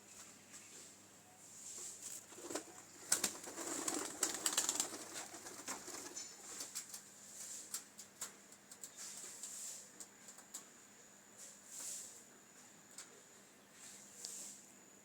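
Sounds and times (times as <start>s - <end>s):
clicks and rustling of birds: 2.0s - 10.7s
pigeons cooing: 2.3s - 6.7s.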